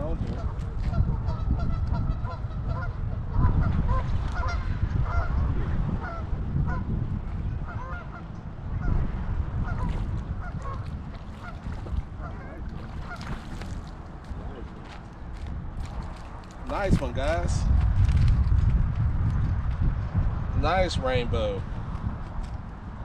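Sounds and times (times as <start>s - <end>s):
wind rumble on microphone: 0.0s - 23.0s
geese honking: 7.6s - 9.0s.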